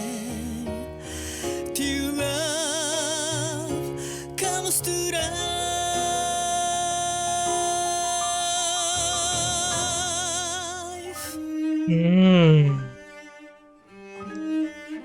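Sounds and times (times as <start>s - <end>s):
soft backing music: 0.0s - 15.0s
man singing a long note: 4.4s - 13.0s.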